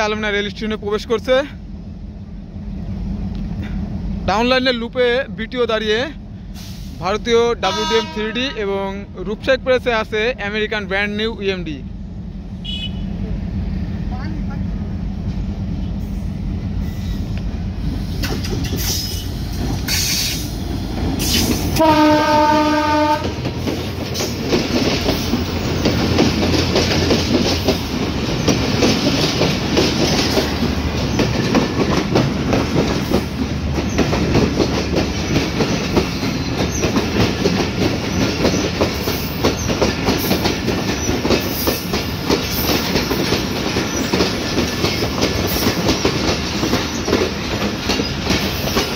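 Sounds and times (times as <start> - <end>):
diesel locomotive engine droning: 0.0 - 48.9
train horn blast: 7.6 - 8.7, 12.6 - 13.2, 21.8 - 23.4
train wheels clattering on rails: 14.6 - 48.9.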